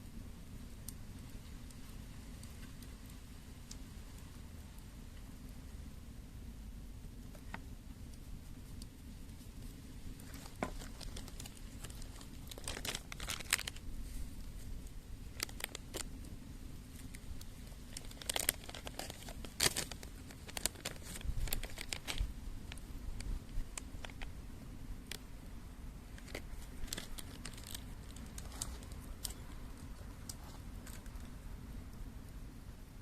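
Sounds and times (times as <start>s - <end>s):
packaging crinkling and tearing: 10.2s - 13.8s, 15.4s - 16.1s, 17.7s - 22.3s, 23.2s - 24.3s, 26.2s - 29.4s, 30.3s - 31.3s.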